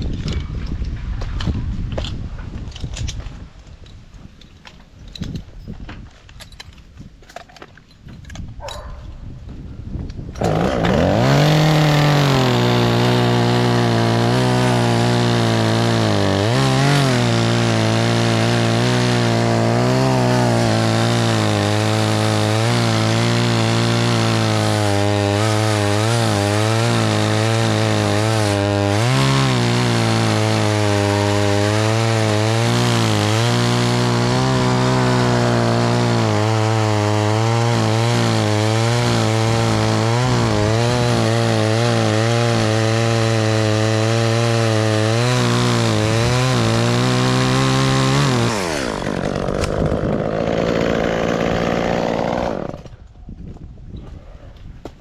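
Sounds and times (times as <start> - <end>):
chainsaw revving and cutting wood: 10.4 - 53.1.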